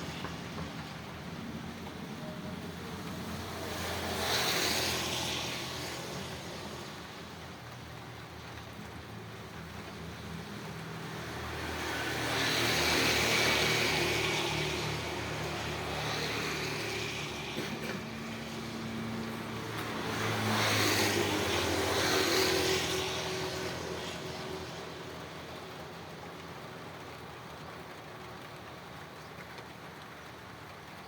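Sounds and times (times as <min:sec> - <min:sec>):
motor vehicles passing: 0:00.0 - 0:31.0
rain: 0:00.0 - 0:31.0.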